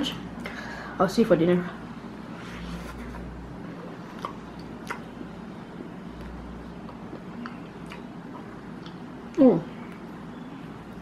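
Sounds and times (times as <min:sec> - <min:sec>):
low background hum: 0:00.0 - 0:11.0
person chewing wafer: 0:03.8 - 0:09.3.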